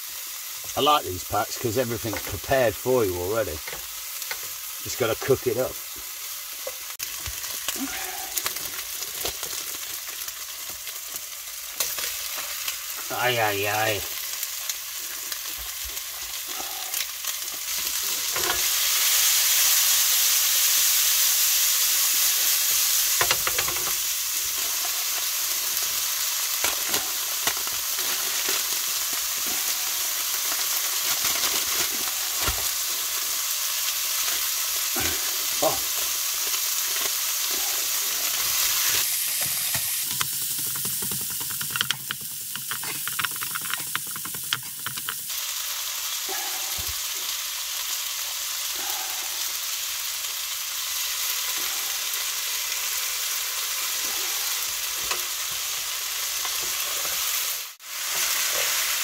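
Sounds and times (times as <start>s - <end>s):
food sizzling in a frying pan: 0.0s - 59.0s
wooden spatula tapping and scraping: 39.3s - 45.3s.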